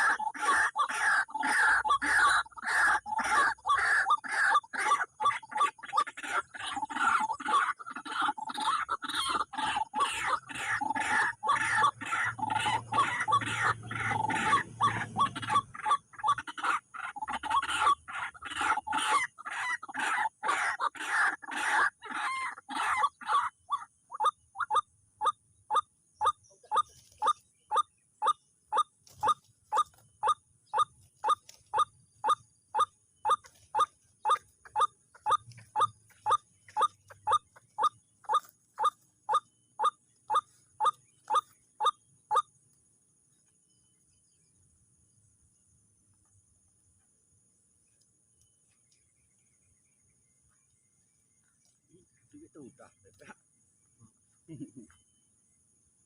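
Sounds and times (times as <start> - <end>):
waterhen croaking calls: 0.0 - 42.5.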